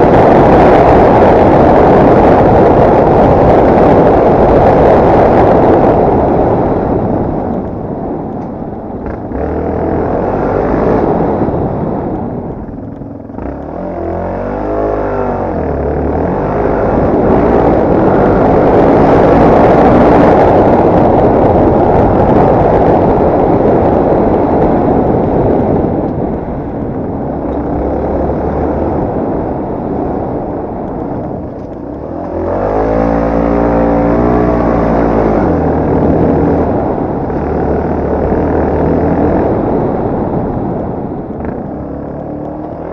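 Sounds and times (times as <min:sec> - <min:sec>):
dense rushing noise: 0:00.0 - 0:42.9
motorcycle engine revving under load: 0:09.0 - 0:23.2, 0:31.2 - 0:42.9.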